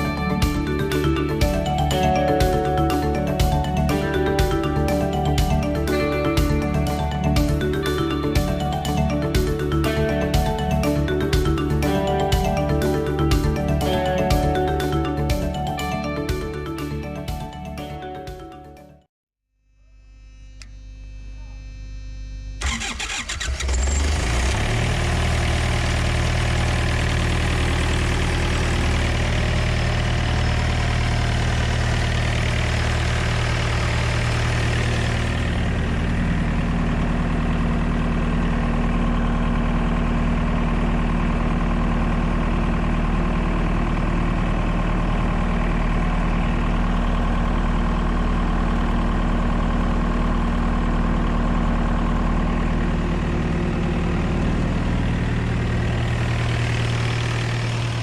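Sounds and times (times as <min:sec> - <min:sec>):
refrigeration unit engine running: 0:22.6 - 0:58.0.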